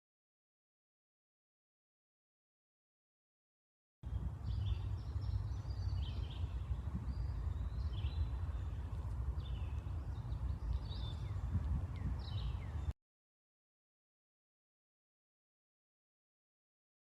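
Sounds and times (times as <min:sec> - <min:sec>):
birds chirping: 0:04.0 - 0:12.9
low steady rumble: 0:04.0 - 0:12.9.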